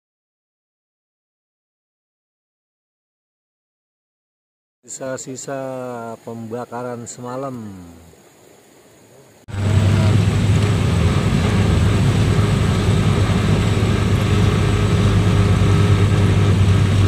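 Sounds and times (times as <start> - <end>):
car engine droning while driving: 9.5 - 17.0.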